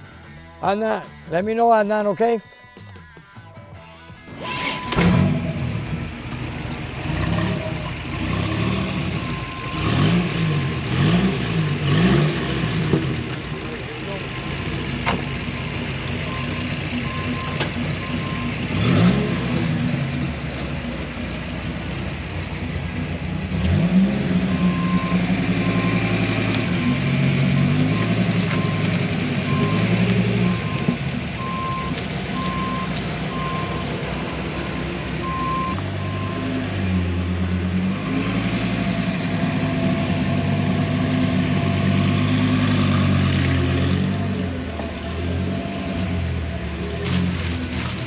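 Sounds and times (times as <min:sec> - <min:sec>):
car engine revving: 0:03.8 - 0:48.0
short repeated beeps: 0:04.4 - 0:05.1.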